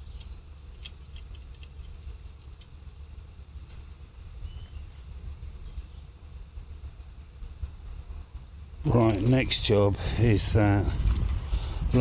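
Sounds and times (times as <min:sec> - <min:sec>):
low rumble: 0:06.6 - 0:12.0.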